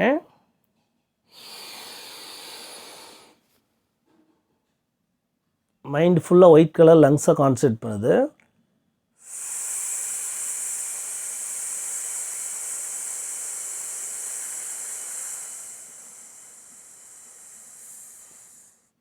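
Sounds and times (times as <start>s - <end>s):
man hissing through teeth: 1.3s - 3.4s, 9.2s - 18.9s.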